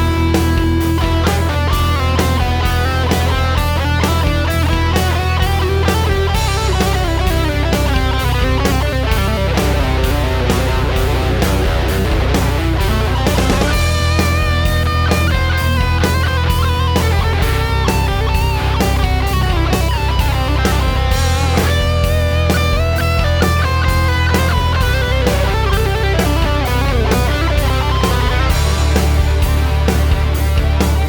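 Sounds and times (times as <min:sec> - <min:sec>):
bass: 0:00.0 - 0:31.0
distorted electric guitar solo: 0:00.0 - 0:31.0
drums: 0:00.0 - 0:31.0.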